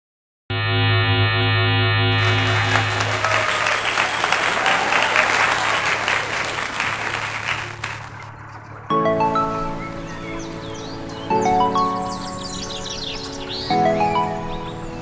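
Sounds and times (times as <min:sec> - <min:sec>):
low hum: 0:00.5 - 0:03.8
dense clapping: 0:02.2 - 0:08.4
sustained musical tone: 0:08.9 - 0:15.0.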